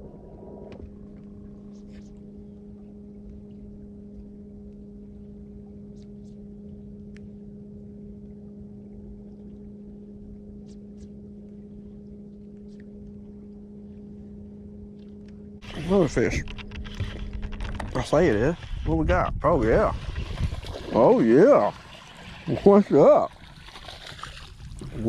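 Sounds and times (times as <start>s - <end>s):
electric boat motor humming: 0.0s - 24.8s
faint ticks: 0.8s - 7.4s, 14.9s - 15.7s.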